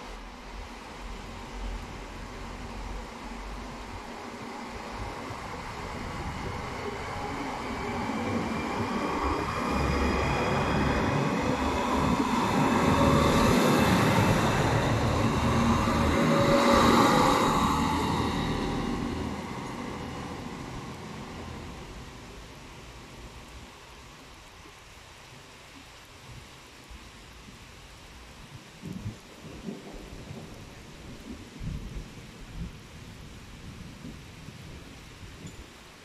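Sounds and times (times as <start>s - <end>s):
diesel railcars passing: 0.0s - 23.5s.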